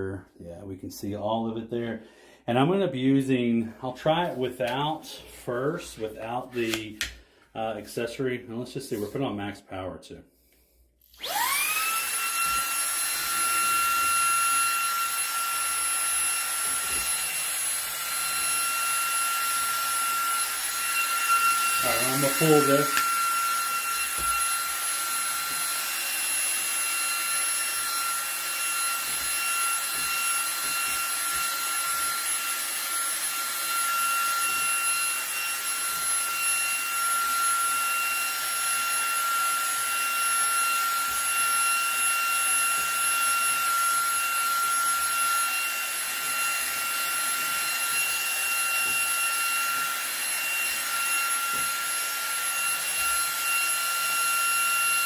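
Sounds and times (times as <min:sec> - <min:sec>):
handheld vacuum motor whine: 0:11.0 - 0:55.0.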